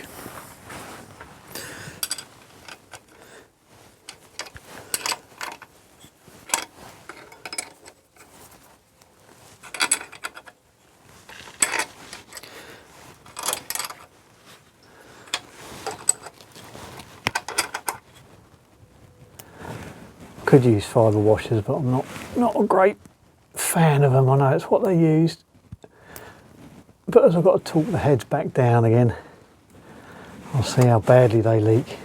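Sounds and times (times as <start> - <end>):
hand tools clinking on metal: 1.6 - 3.4, 4.0 - 5.7, 6.4 - 8.4, 9.6 - 10.6, 11.3 - 12.6, 13.2 - 14.1, 15.2 - 16.4, 17.3 - 18.0.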